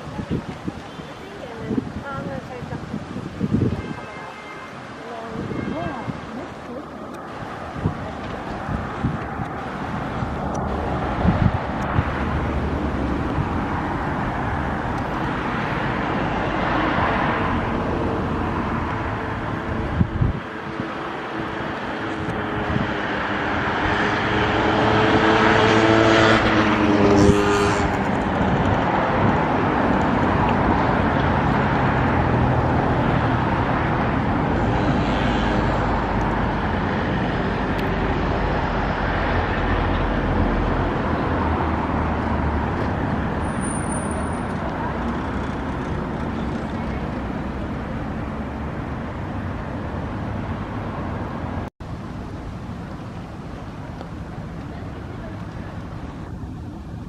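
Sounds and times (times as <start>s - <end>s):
city traffic noise: 0.0s - 57.0s
motor vehicle passing close: 21.4s - 48.6s.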